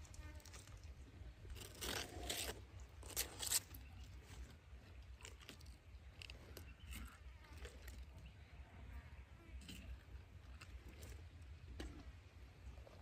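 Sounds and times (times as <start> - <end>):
animal crunching and chewing: 0.0 - 8.4, 9.5 - 13.0.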